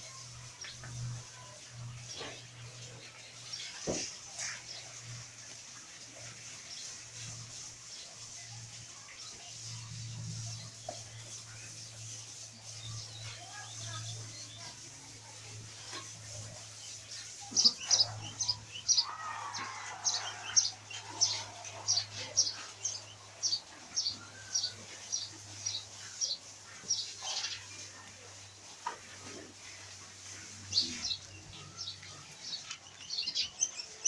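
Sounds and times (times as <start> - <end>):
small birds chirping: 9.0 - 28.6, 29.9 - 34.0.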